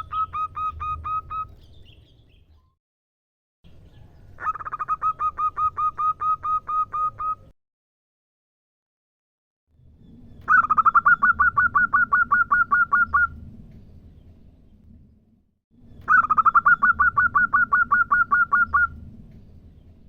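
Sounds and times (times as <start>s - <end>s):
dove calling: 0.0s - 2.1s, 4.1s - 7.5s, 10.4s - 13.4s, 16.0s - 19.0s
low background hum: 9.8s - 20.0s.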